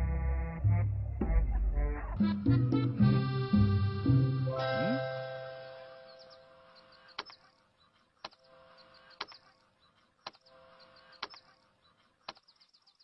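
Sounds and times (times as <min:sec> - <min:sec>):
faint sharp clicks: 0:07.1 - 0:08.5, 0:09.1 - 0:10.5, 0:11.2 - 0:12.9.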